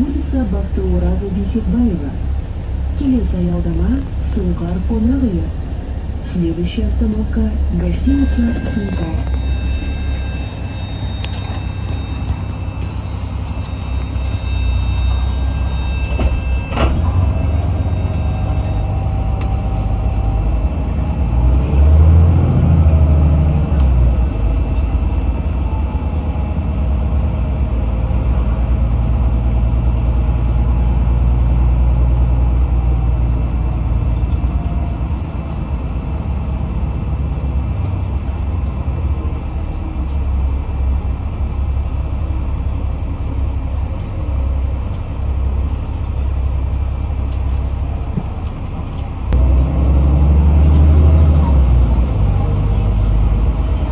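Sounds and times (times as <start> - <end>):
bus diesel engine droning: 0.0 - 53.9.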